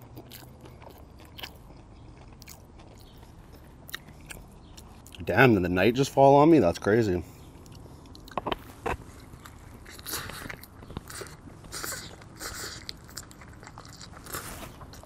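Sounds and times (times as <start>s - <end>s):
sandwich crunching: 0.0s - 5.3s, 7.6s - 15.0s
wet chewing: 0.0s - 5.3s, 7.6s - 15.0s.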